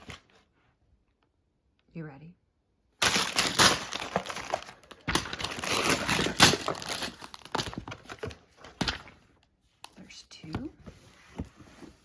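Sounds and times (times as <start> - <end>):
cardboard and plastic bags crinkling: 3.0 - 9.4.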